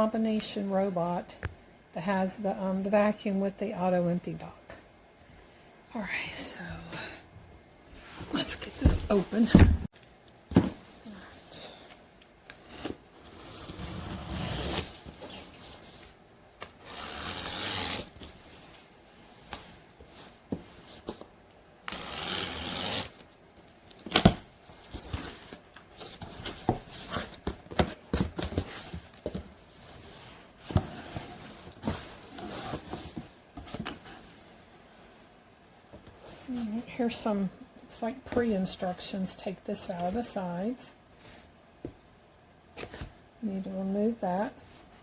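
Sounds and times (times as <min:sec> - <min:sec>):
cardboard scraping and tearing: 0:12.6 - 0:16.0, 0:16.8 - 0:18.4, 0:21.9 - 0:23.2.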